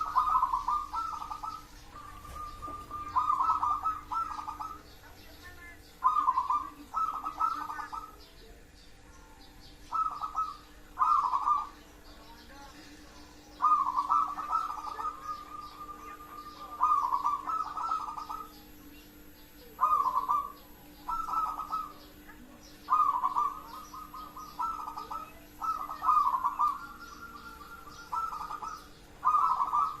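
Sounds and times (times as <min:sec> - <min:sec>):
dove trilled cooing: 0:00.0 - 0:08.3, 0:09.6 - 0:12.2, 0:13.4 - 0:30.0
small birds chirping: 0:00.0 - 0:30.0.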